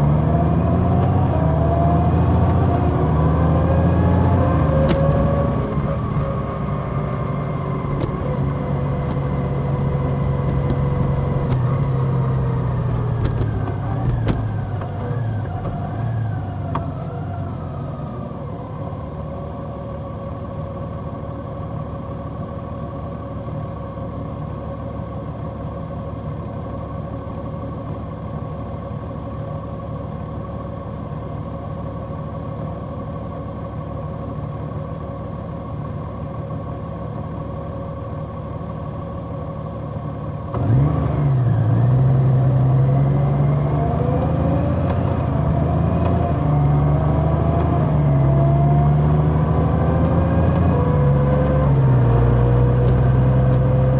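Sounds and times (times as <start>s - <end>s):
motorcycle engine slowing down: 2.4s - 20.0s.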